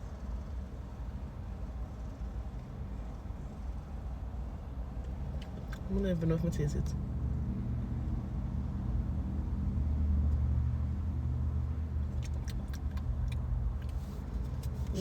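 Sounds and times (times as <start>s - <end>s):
car engine idling: 12.0s - 15.0s.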